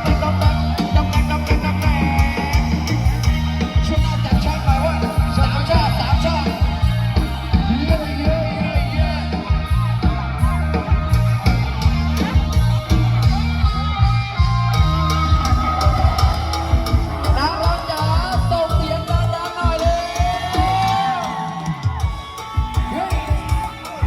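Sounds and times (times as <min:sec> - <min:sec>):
deep bass: 0:00.0 - 0:22.2
drum beat: 0:00.0 - 0:24.0
electric guitar: 0:00.0 - 0:24.0
wavering melody line: 0:11.8 - 0:19.5.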